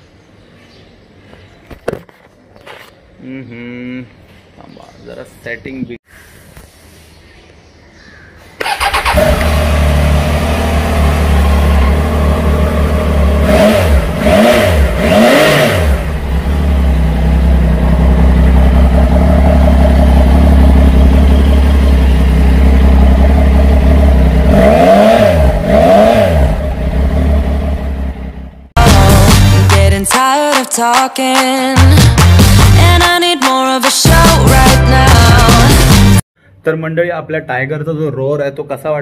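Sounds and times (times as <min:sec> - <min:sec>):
motorcycle engine idling and revving: 0:08.6 - 0:29.9.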